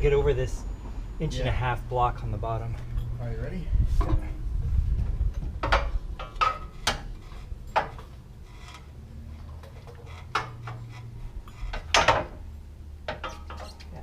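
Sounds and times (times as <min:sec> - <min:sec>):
coil spring clanking and knocking: 0:05.0 - 0:14.0.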